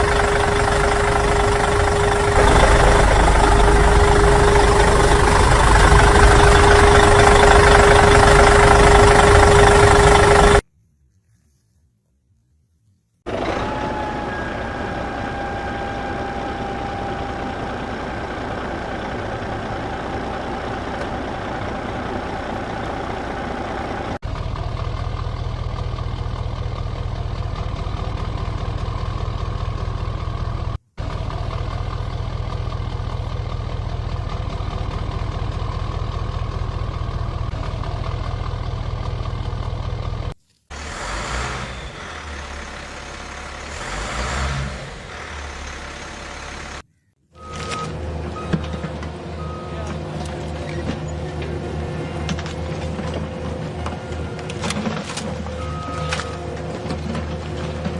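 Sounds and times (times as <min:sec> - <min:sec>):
truck engine running: 0:00.0 - 0:10.6, 0:13.3 - 0:57.9.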